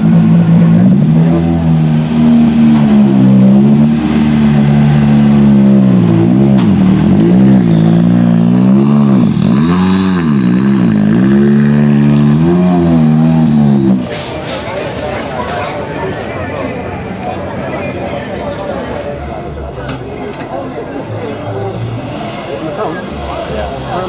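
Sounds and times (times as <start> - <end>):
rally car engine revving: 0.0 - 14.2.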